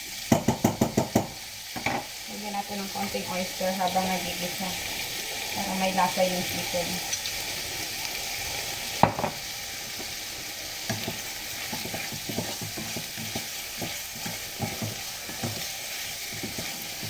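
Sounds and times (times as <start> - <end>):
chicken sizzling in a pan: 0.0 - 17.0
sharp knock against pan: 0.3 - 2.1, 9.0 - 9.4
utensil scraping a pan: 10.8 - 17.0.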